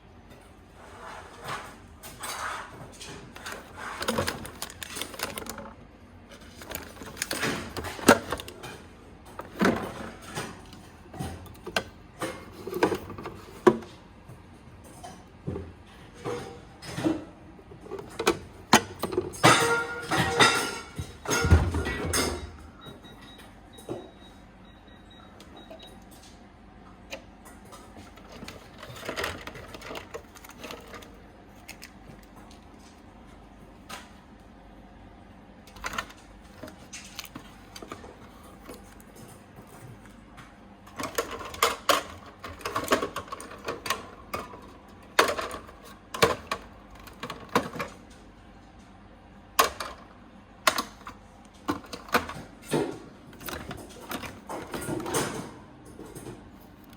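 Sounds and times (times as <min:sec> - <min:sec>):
plastic rustling and clatter: 0:01.1 - 0:13.9, 0:27.8 - 0:33.0, 0:40.9 - 0:48.1, 0:50.7 - 0:56.9
containers clicking and knocking: 0:03.4 - 0:05.8.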